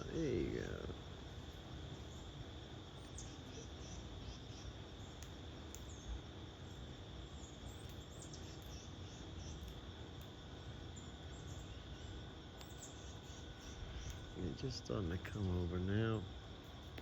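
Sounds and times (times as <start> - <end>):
even hiss: 0.0 - 4.0, 13.0 - 16.4
high insect drone: 0.0 - 17.0
faint bird chirps: 2.9 - 5.2, 7.4 - 9.7, 11.0 - 15.7.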